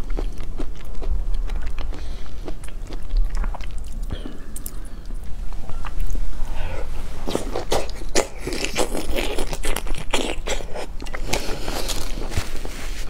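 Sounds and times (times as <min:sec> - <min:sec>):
chewing with wet crunches: 0:00.0 - 0:12.4.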